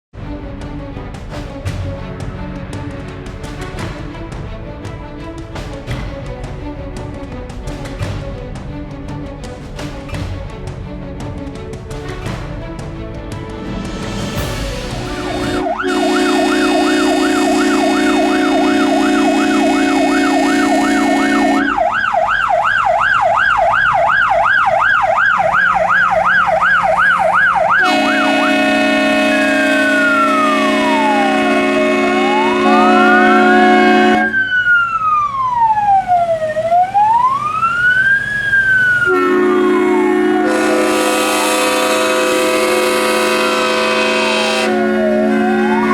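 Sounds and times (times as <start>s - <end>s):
electronic siren: 15.2s - 45.9s.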